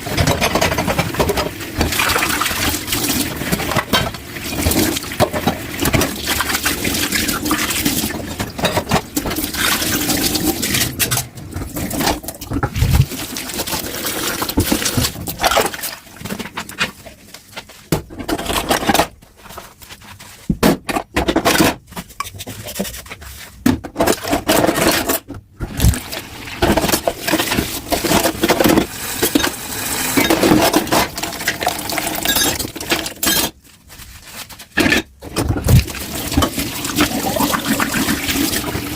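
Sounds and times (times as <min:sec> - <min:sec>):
dishes clinking and scraping: 0:00.0 - 0:02.4, 0:07.2 - 0:09.7, 0:23.9 - 0:25.3, 0:26.6 - 0:33.6.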